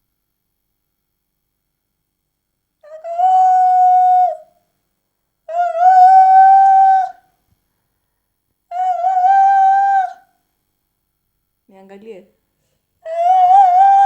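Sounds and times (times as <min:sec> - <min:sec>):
person howling high-pitched notes: 0:13.1 - 0:14.0.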